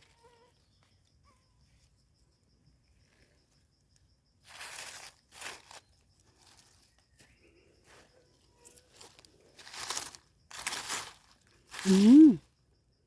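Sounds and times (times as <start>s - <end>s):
insect trill: 0.0s - 13.0s
rustling in dry leaves: 4.4s - 7.1s, 7.8s - 12.5s.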